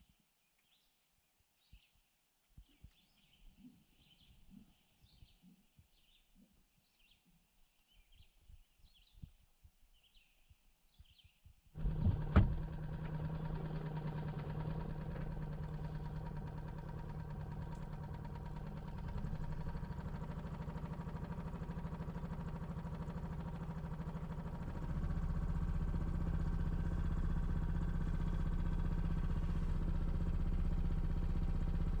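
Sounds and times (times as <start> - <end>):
engine starting and running: 11.8 - 32.0.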